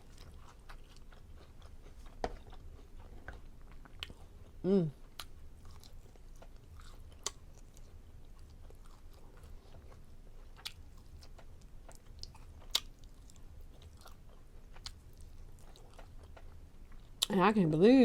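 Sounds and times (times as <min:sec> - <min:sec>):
person chewing food: 0:00.0 - 0:17.3.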